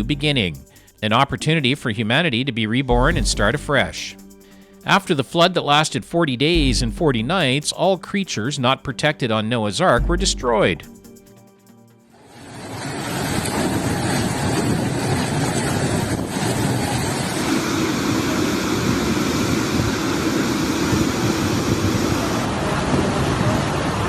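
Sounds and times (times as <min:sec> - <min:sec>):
storm and flood water rushing: 0:12.2 - 0:24.0.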